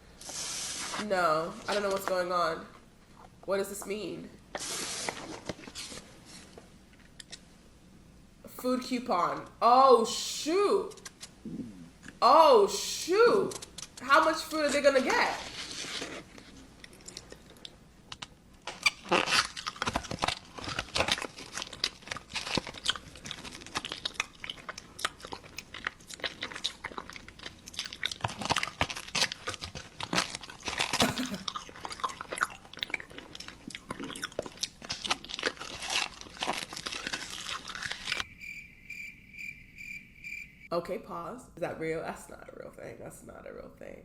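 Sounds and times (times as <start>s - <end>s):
crunching and chewing crisp food: 4.5s - 7.4s, 15.4s - 38.3s.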